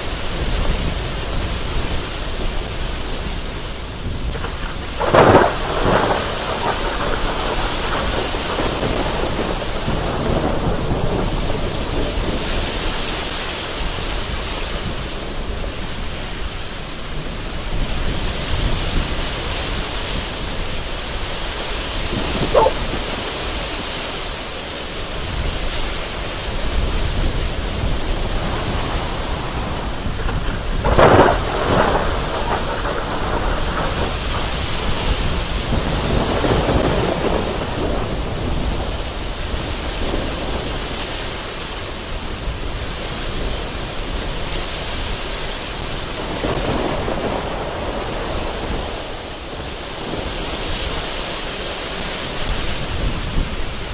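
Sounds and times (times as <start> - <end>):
low thunder rumbling: 0.0 - 16.4, 17.1 - 40.9, 45.9 - 51.4
heavy rain and gusting wind: 0.0 - 53.9
sharp thunder crack: 4.2 - 12.7, 21.8 - 24.1, 28.4 - 39.0.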